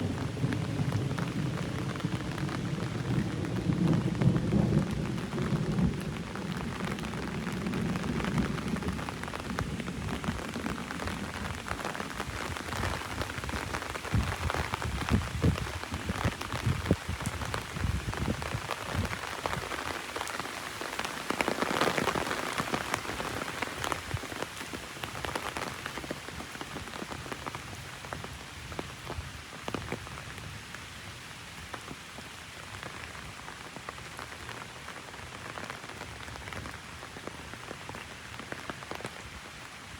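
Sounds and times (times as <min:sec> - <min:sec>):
low rumble of thunder: 0:00.0 - 0:19.7
heavy rain drumming on umbrella: 0:00.0 - 0:39.9.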